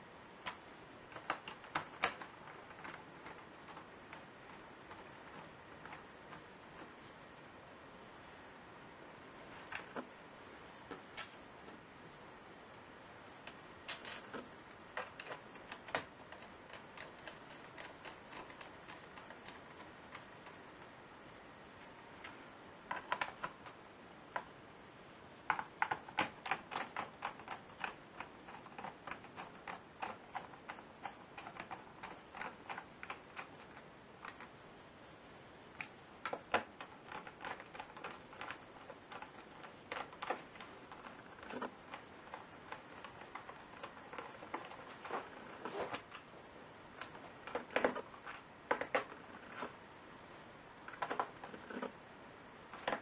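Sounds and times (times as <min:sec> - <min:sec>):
typing on computer keyboard: 0:00.4 - 0:06.5, 0:13.9 - 0:20.9, 0:22.9 - 0:24.5, 0:25.5 - 0:34.5, 0:35.8 - 0:46.3, 0:47.0 - 0:49.8.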